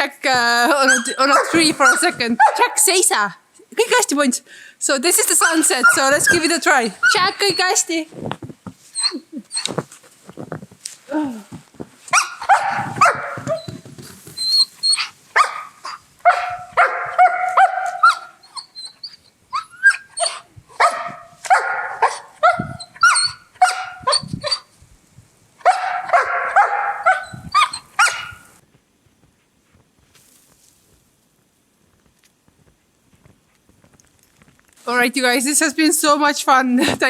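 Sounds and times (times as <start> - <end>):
dog barking and whining: 0.7 - 3.0, 5.2 - 8.0, 8.9 - 9.8, 12.1 - 24.7, 25.6 - 28.6.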